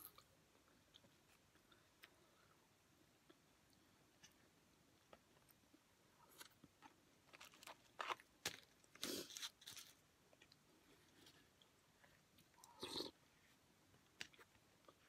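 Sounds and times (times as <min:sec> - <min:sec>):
crisp crunching: 0:07.2 - 0:10.0.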